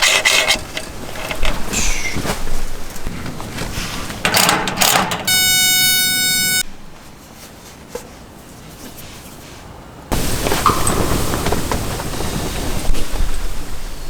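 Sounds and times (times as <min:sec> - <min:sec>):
steady horn-like tone: 0:05.3 - 0:06.7
gusty rustling noise: 0:06.9 - 0:14.0.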